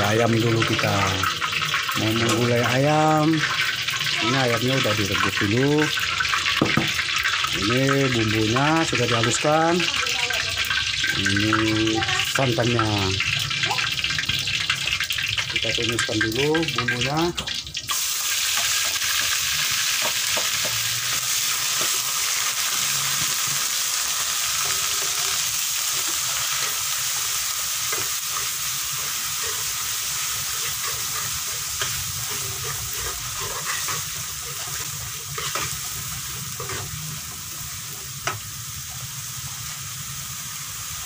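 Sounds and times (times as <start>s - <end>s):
spice paste sizzling in oil: 0.0s - 41.0s
metal spatula scraping pan: 24.6s - 37.4s.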